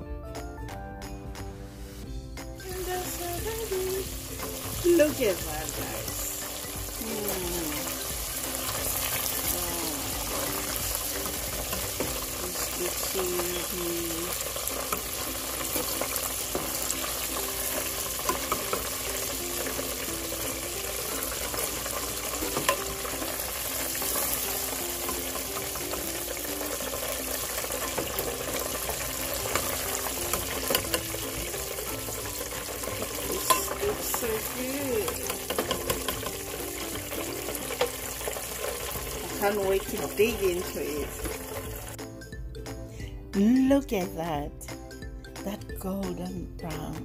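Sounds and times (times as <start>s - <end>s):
quiet background music: 0.0s - 47.0s
food sizzling in hot oil: 1.8s - 42.1s
metal spatula clicking on pan: 29.4s - 31.3s, 33.2s - 34.3s, 35.0s - 36.4s.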